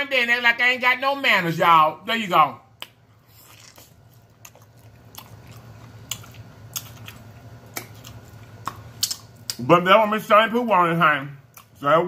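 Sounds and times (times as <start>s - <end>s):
wet mouth clicks: 7.7s - 9.6s.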